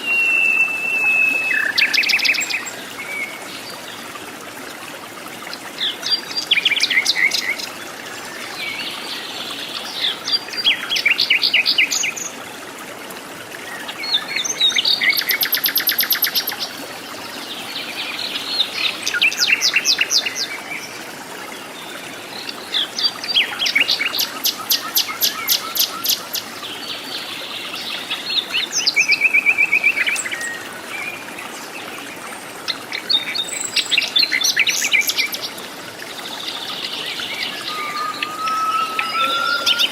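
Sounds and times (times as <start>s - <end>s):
bird trilling high notes: 37.4s - 39.9s.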